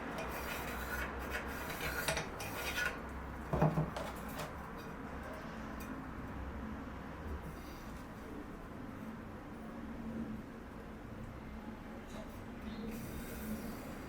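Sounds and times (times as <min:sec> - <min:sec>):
hand tool scraping wood: 0:00.0 - 0:03.0
wood knock: 0:03.5 - 0:04.1.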